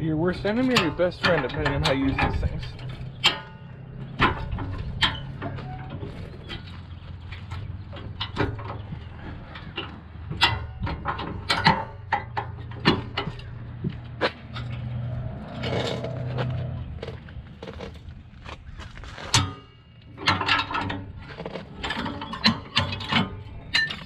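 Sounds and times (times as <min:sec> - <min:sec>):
low engine hum: 0:00.0 - 0:21.9
sharp metal clicks and clanks: 0:00.3 - 0:18.1, 0:19.2 - 0:24.0.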